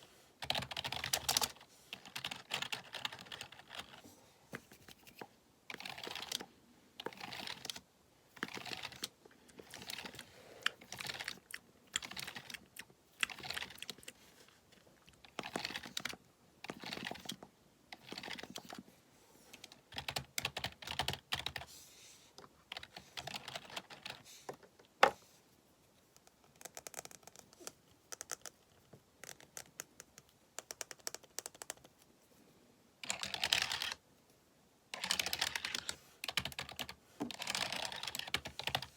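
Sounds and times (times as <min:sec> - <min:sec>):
keyboard typing: 0:00.4 - 0:04.0, 0:04.8 - 0:07.8, 0:08.4 - 0:14.2, 0:15.2 - 0:17.4, 0:18.0 - 0:18.8, 0:19.9 - 0:21.7, 0:22.7 - 0:24.2, 0:33.0 - 0:34.0, 0:34.9 - 0:38.9.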